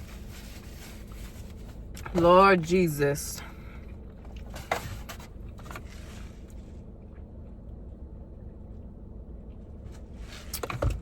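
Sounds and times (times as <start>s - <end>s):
rustling: 0.0s - 2.2s
low hum inside car: 0.0s - 11.0s.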